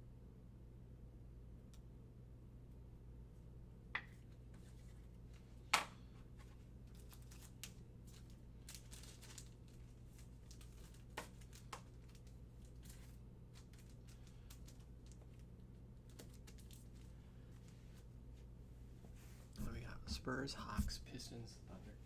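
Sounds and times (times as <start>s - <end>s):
faint steady hum: 0.0s - 22.0s
foil wrappers crinkling: 6.5s - 17.8s.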